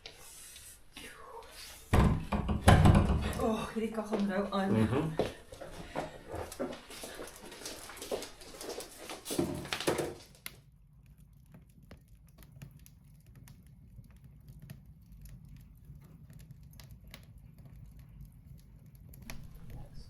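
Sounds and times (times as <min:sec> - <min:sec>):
wood fire crackling: 0:00.0 - 0:20.0
rustling noise: 0:05.6 - 0:10.4.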